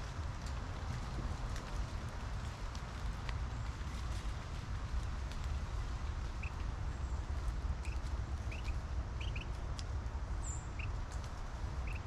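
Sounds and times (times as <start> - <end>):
small birds chip calls: 6.3 - 12.0
faint ticks: 7.8 - 10.0.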